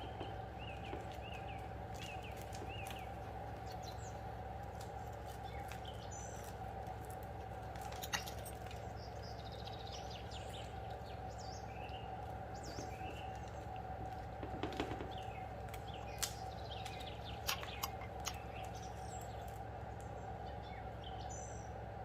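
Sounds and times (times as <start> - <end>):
birds chirping: 0.0 - 22.0
steady background hum: 0.0 - 22.0.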